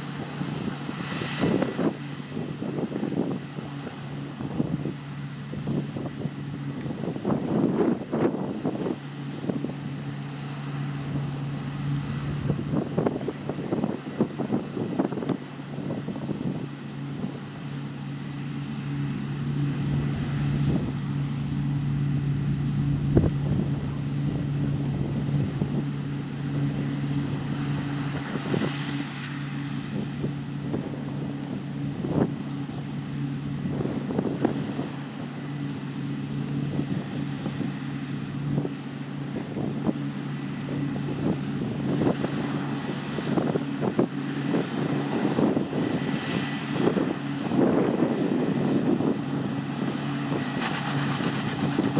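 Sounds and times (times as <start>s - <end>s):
large diesel engine droning: 0.0s - 51.9s.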